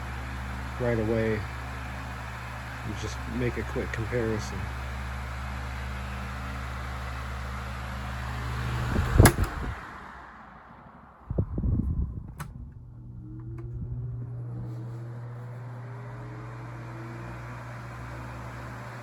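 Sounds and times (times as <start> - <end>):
fan clunks: 0.0 - 5.1, 7.9 - 10.1, 11.3 - 19.0
table fan running: 0.0 - 10.4, 11.2 - 19.0
fan motor hum: 0.0 - 19.0
fan switch click: 8.8 - 9.8, 12.2 - 12.8.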